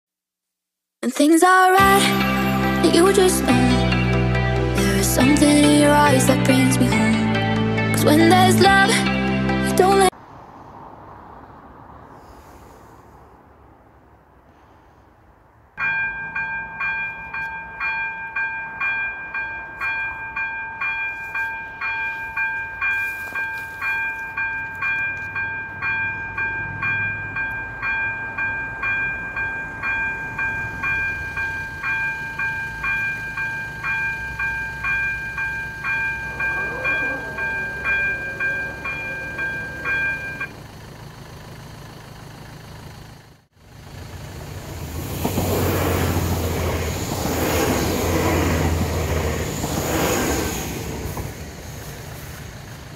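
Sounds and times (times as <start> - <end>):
train rumbling past: 1.8 - 52.9
level crossing bell ringing: 15.8 - 40.5.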